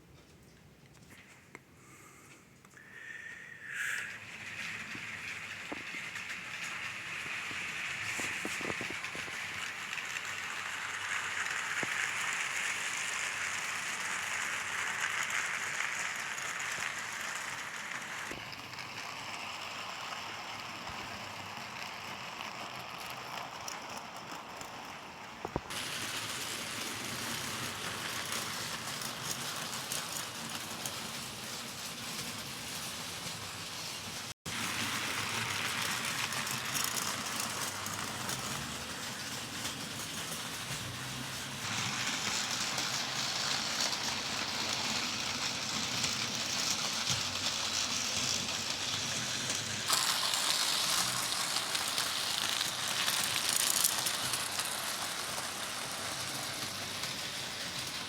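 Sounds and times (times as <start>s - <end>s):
rain hissing: 3.0s - 9.6s, 49.2s - 57.6s
model train wheels rattling: 3.6s - 58.0s.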